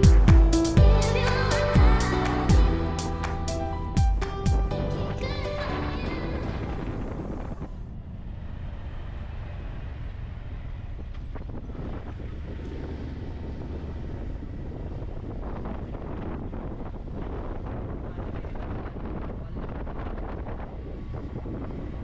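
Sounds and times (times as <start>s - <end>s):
music: 0.0s - 7.1s
wind buffeting microphone: 0.0s - 7.8s, 11.3s - 22.0s.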